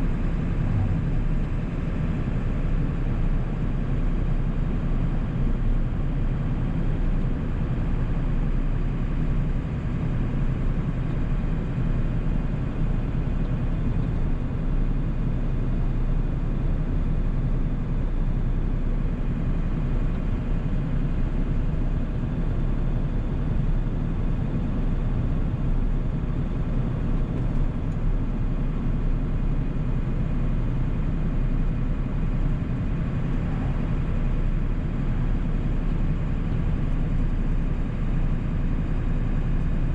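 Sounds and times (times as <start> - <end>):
road noise: 0.0 - 2.8
diesel truck engine rumble: 0.0 - 39.9.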